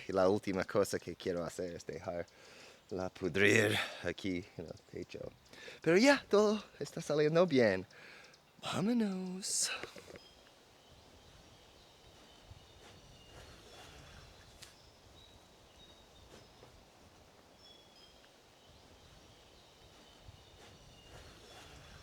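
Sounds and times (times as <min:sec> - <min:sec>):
faint bird chirps: 0:00.0 - 0:22.0.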